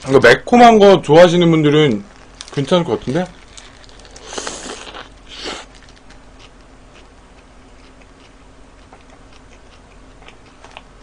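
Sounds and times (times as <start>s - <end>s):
faint chewing: 2.1s - 11.0s
crunchy bite into burger: 3.4s - 10.9s.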